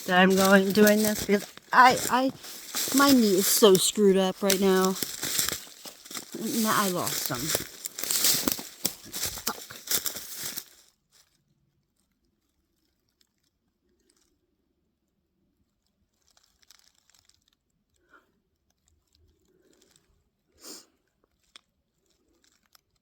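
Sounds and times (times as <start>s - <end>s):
footsteps crunching on ground: 0.0s - 10.8s.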